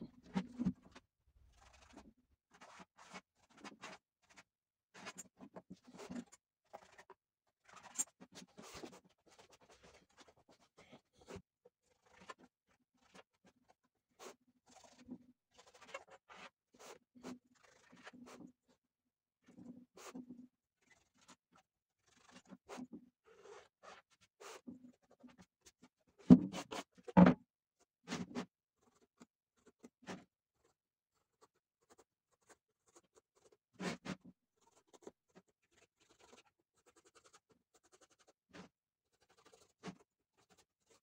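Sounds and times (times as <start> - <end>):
faint scratching and rubbing: 0.2 - 2.1, 28.1 - 41.0.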